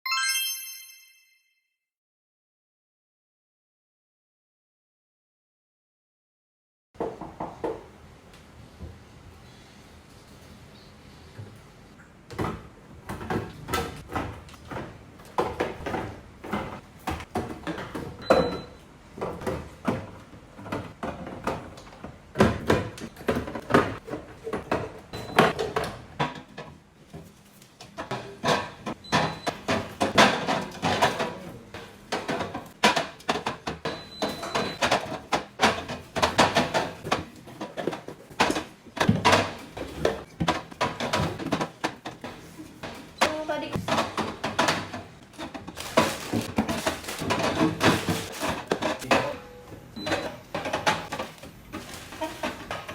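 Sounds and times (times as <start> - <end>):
containers clattering in refrigerator: 12.3 - 26.8, 27.9 - 52.9.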